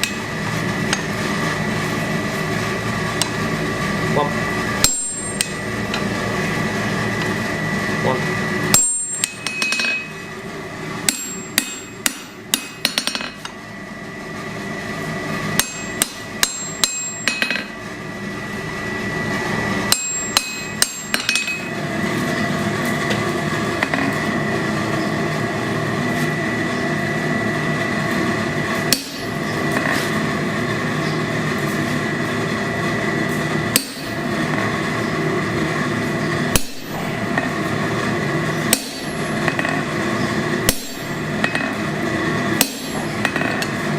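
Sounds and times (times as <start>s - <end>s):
hammer striking steel on anvil: 4.8s - 6.1s, 8.7s - 10.1s, 11.0s - 13.6s, 15.6s - 17.7s, 19.9s - 21.7s, 28.9s - 30.0s, 33.7s - 34.2s, 36.5s - 37.5s, 38.7s - 39.8s, 40.6s - 41.8s, 42.6s - 43.8s.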